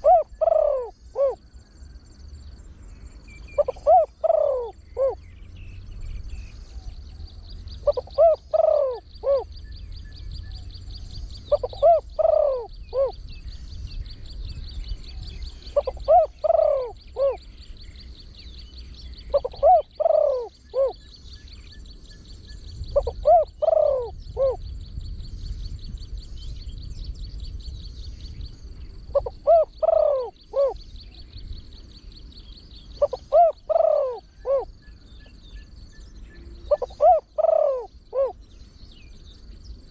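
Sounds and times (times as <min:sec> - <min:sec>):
dove cooing: 0:00.0 - 0:01.5, 0:03.5 - 0:05.2, 0:07.7 - 0:09.6, 0:11.4 - 0:13.2, 0:15.4 - 0:17.6, 0:19.2 - 0:21.1, 0:22.9 - 0:24.6, 0:29.0 - 0:30.9, 0:33.0 - 0:35.4, 0:36.5 - 0:38.4
insect trill: 0:00.0 - 0:39.9.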